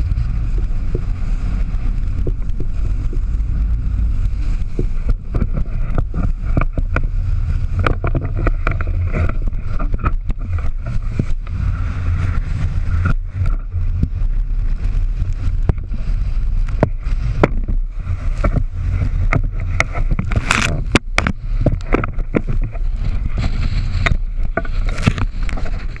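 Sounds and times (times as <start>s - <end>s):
low rumble aboard sailboat: 0.0s - 26.0s.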